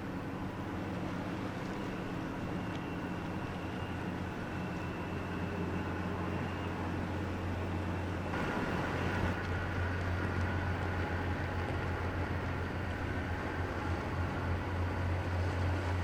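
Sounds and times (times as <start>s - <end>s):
ship diesel engines humming: 0.0s - 16.0s
faint high steady tone: 0.1s - 11.6s.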